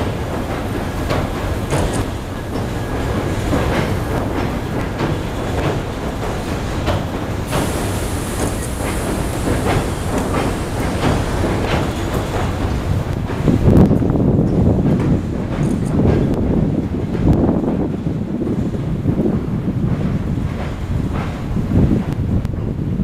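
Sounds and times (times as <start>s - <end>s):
wheels clacking over rail joints: 0.0s - 17.4s
train rumbling on bridge: 0.0s - 23.0s.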